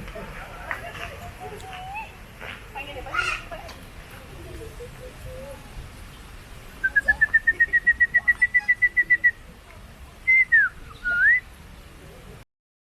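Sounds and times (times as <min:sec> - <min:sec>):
bird whistled notes: 0:06.8 - 0:09.4, 0:10.3 - 0:11.5
slurred bird whistles: 0:06.8 - 0:09.4, 0:10.3 - 0:11.5.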